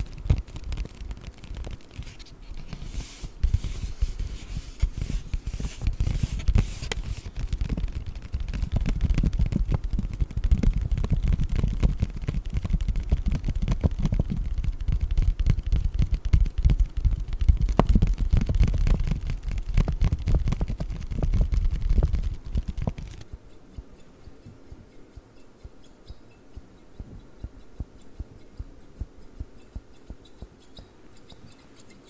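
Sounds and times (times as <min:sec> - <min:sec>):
paper bag crinkling: 0:00.0 - 0:08.5.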